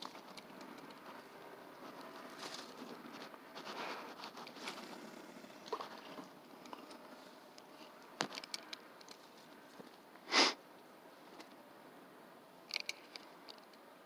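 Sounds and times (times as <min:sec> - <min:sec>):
person sniffing: 0:10.3 - 0:10.6.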